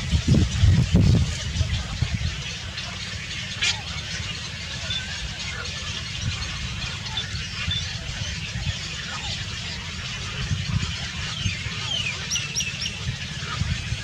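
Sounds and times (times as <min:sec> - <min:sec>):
steady low rumble: 0:00.0 - 0:04.6
small birds chirping: 0:00.0 - 0:14.0.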